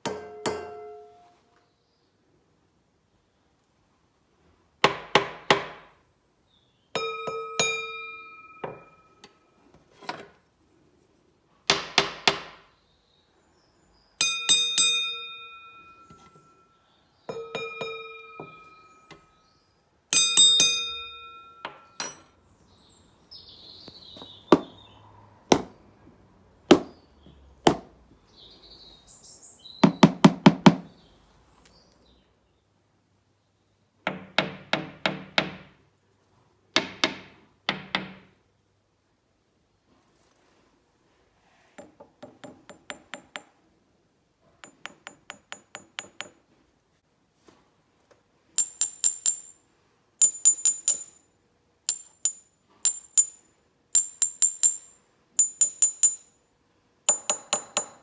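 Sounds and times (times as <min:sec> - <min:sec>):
beater tapping on metal ringing: 0:07.0 - 0:09.3, 0:14.2 - 0:16.7, 0:17.3 - 0:19.3, 0:20.2 - 0:22.3, 0:44.6 - 0:46.4, 0:48.6 - 0:49.6, 0:50.2 - 0:51.2, 0:51.9 - 0:56.4, 0:57.1 - 0:58.0.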